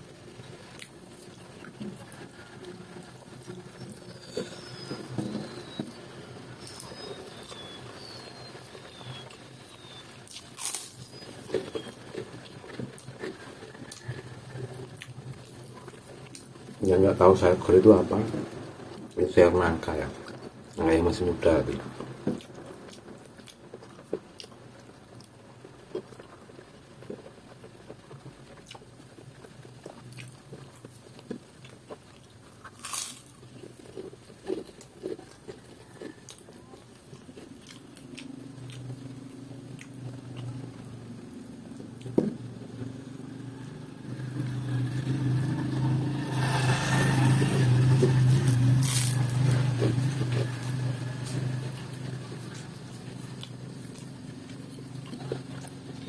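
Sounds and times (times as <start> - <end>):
chewing and lip smacks: 6.6 - 16.7, 21.7 - 25.3, 27.0 - 40.9, 41.7 - 42.2, 48.0 - 56.0
low motor hum: 38.0 - 56.0.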